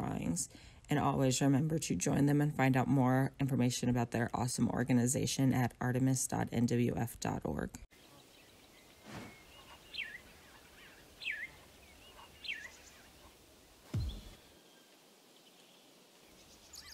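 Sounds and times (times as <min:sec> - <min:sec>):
faint steady hiss: 0:07.9 - 0:16.9.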